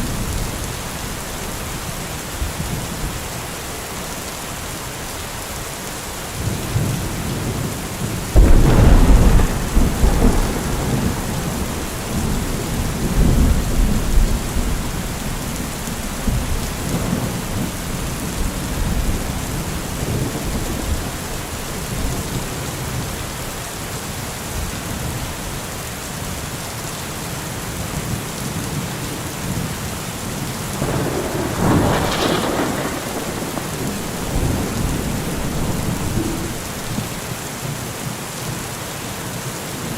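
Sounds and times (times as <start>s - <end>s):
steady rain: 0.0s - 39.9s
thunder rumbling: 6.4s - 23.3s, 30.8s - 37.4s.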